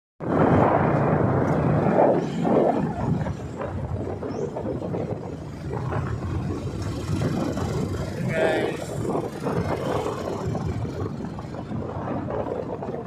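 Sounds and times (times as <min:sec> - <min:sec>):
motor vehicle running: 0:00.2 - 0:13.0.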